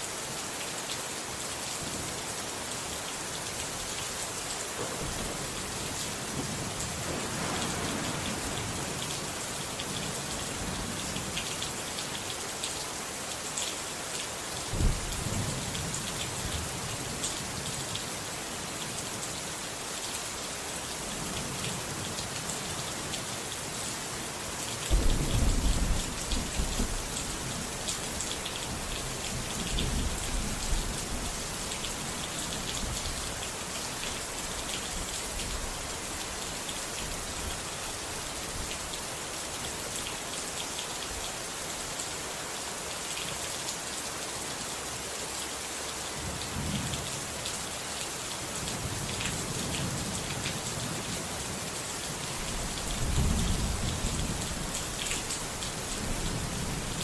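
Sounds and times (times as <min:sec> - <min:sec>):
heavy rain hissing: 0:00.0 - 0:43.0, 0:43.6 - 0:57.0
low thunder rumbles: 0:04.8 - 0:11.1, 0:14.7 - 0:15.8, 0:24.9 - 0:31.3, 0:52.7 - 0:55.0.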